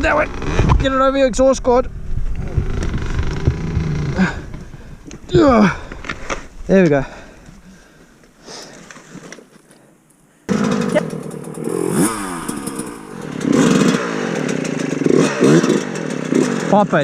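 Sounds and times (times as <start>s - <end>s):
dirt bike engine revving: 0.0s - 1.0s, 2.4s - 7.2s, 10.5s - 17.0s.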